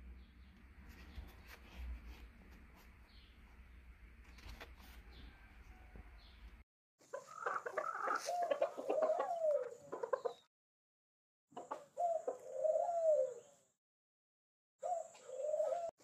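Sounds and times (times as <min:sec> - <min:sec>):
chickens clucking: 0:07.0 - 0:10.5, 0:11.5 - 0:13.4.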